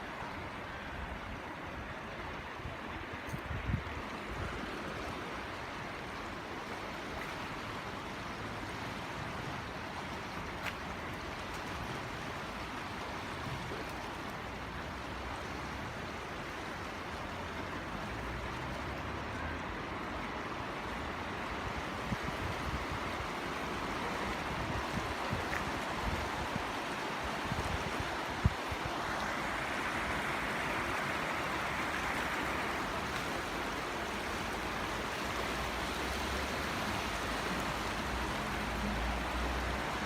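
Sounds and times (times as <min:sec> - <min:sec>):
wind rumble on microphone: 0:02.3 - 0:05.4, 0:21.3 - 0:33.4
waterfall rushing: 0:22.8 - 0:40.0.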